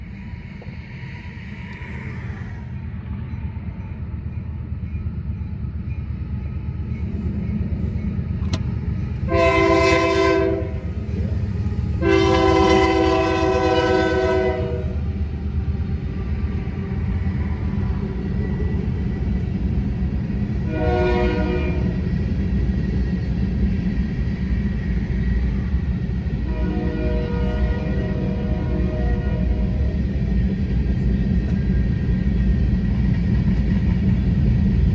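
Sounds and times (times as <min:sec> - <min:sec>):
diesel locomotive rumble: 0:00.0 - 0:34.9
train air horn blasts: 0:09.3 - 0:10.8, 0:12.0 - 0:15.0, 0:20.6 - 0:22.0, 0:26.4 - 0:29.8.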